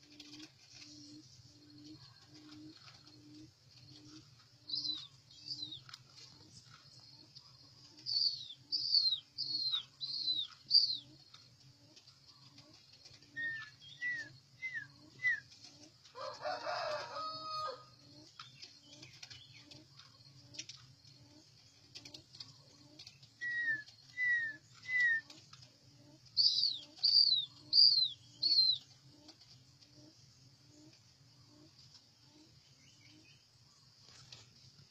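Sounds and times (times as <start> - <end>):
bird whistling down-slurred notes: 13.4 - 15.5, 23.4 - 25.3.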